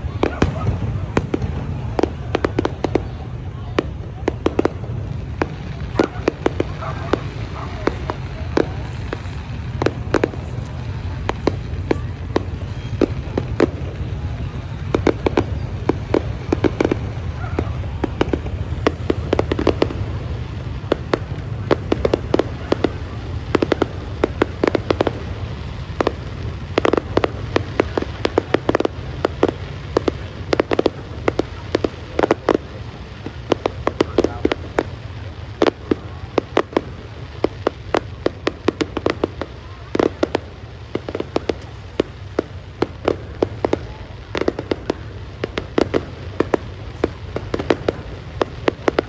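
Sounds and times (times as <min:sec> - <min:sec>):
fireworks bangs and pops: 0:00.0 - 0:49.0
steady low rumble: 0:00.0 - 0:49.0.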